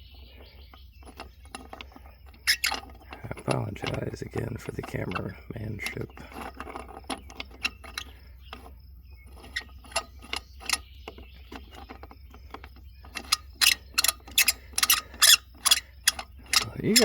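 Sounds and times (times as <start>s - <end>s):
jack ratchet clicking: 11.5s - 17.0s.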